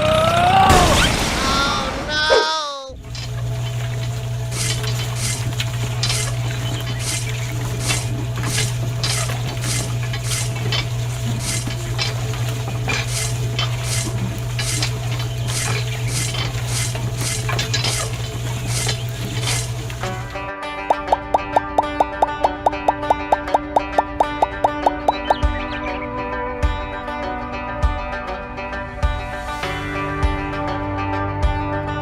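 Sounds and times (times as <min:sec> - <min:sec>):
low hum: 0:03.0 - 0:25.6
scraping or clinking strokes: 0:04.5 - 0:20.3.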